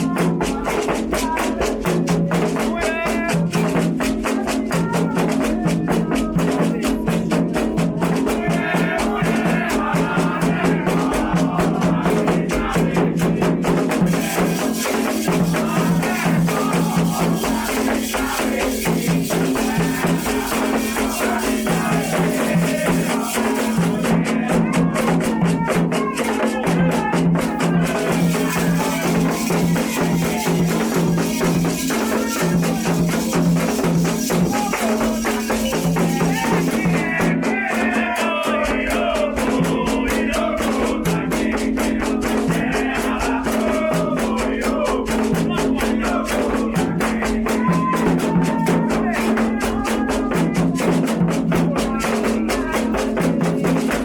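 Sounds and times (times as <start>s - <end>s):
drums: 0.0s - 54.0s
people singing: 0.0s - 54.0s
shaken rattles: 13.7s - 24.5s, 27.6s - 37.3s.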